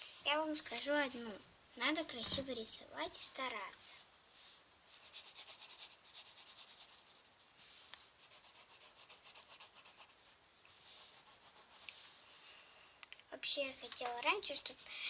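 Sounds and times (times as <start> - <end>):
pencil scribbling on paper: 4.9 - 7.5, 8.2 - 10.2, 10.8 - 12.1, 14.4 - 15.0.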